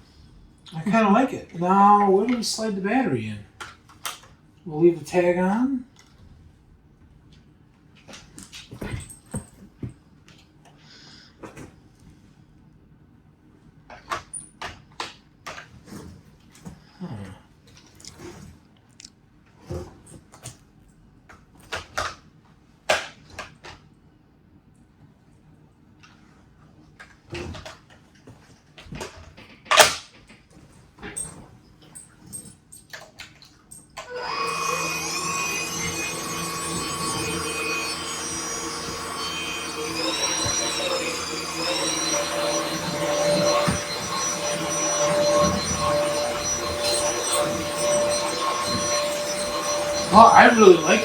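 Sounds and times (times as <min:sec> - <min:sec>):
stick vacuum motor whine: 0:34.0 - 0:51.0.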